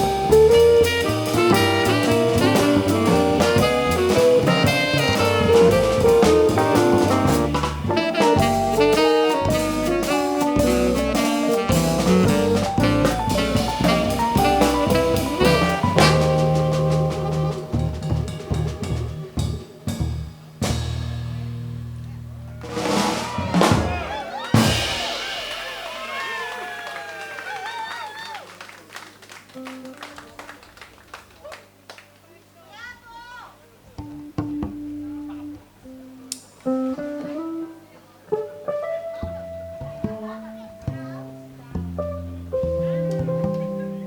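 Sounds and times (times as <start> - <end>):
live jazz band: 0.0 - 26.5, 29.2 - 31.2, 33.8 - 44.0
scattered drum hits: 22.6 - 26.1.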